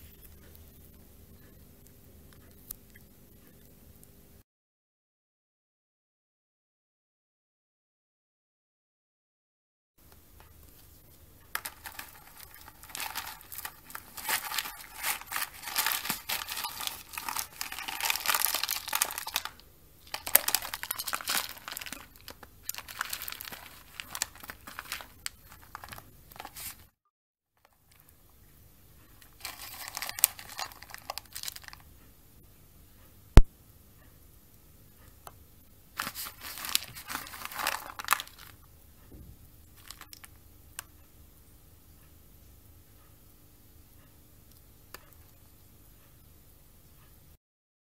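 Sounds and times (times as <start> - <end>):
cat litter crunchy rustling: 10.7 - 26.9, 29.2 - 31.8, 36.0 - 38.6, 39.8 - 40.3.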